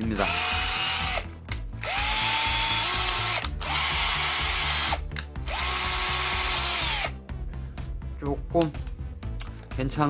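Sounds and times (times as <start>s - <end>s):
cordless drill motor whine: 0.2s - 7.2s.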